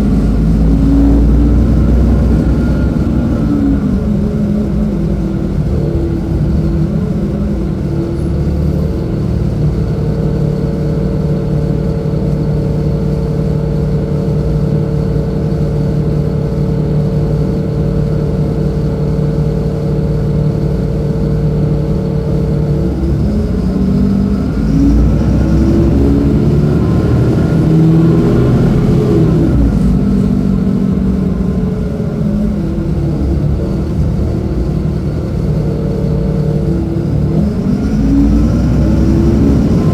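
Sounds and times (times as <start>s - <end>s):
bus diesel engine revving: 0.0s - 39.9s.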